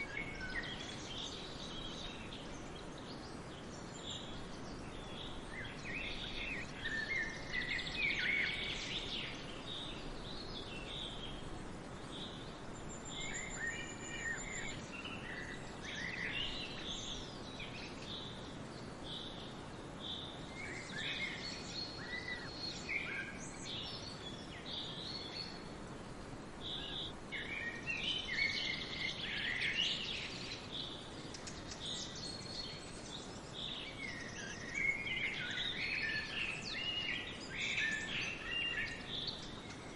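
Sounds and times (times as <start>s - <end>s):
birds chirping and singing: 0.0s - 11.4s, 12.0s - 25.7s, 26.6s - 39.9s
steady background hiss: 0.0s - 39.9s.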